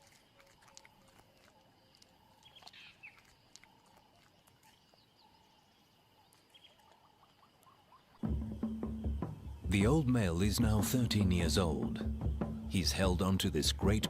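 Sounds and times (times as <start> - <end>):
bird chirps: 4.6 - 14.0.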